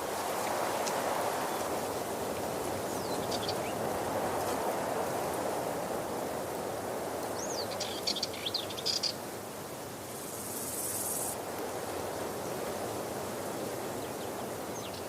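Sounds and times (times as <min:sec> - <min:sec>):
bird singing: 0:02.9 - 0:03.8, 0:07.4 - 0:09.2.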